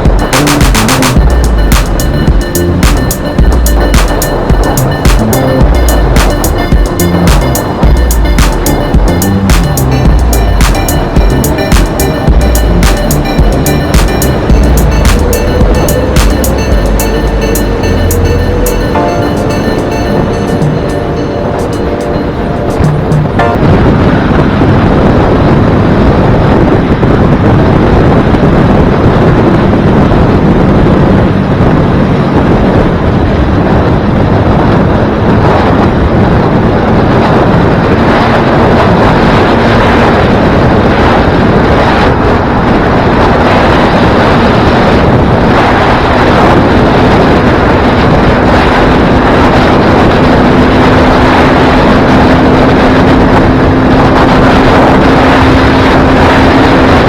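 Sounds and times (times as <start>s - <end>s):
wind rush on microphone: 0.0s - 9.2s, 21.1s - 57.0s
motorcycle engine droning: 0.0s - 57.0s.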